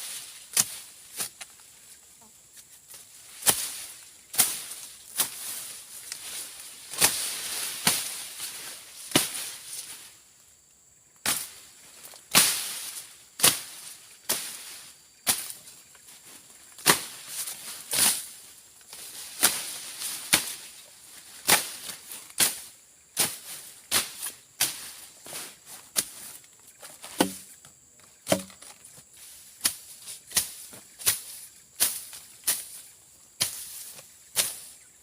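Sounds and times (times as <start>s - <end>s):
blade slashing through brush: 3.3s - 9.9s, 12.3s - 15.6s, 16.8s - 18.4s, 19.0s - 20.8s, 21.4s - 25.0s, 28.3s - 28.6s.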